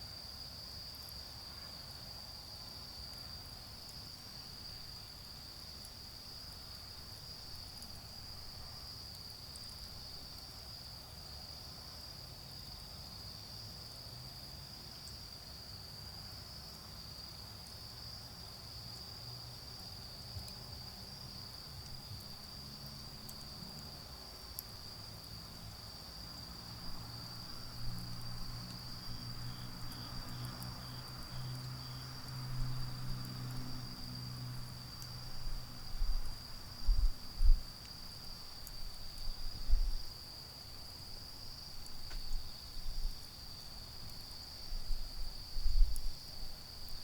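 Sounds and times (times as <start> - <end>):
insects trilling: 15.0 - 47.0
distant road traffic rumble: 26.6 - 37.3.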